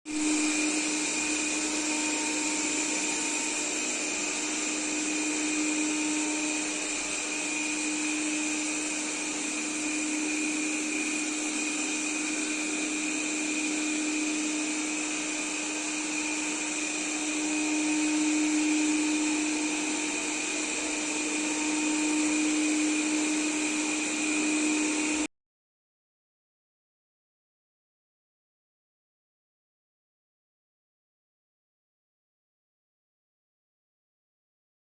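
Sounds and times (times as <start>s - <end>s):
robot vacuum cleaner whirring: 0.1s - 25.3s.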